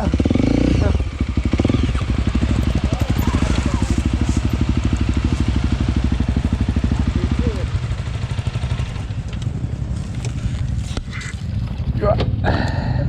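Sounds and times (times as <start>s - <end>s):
engine thumping at low revs: 0.0s - 13.0s.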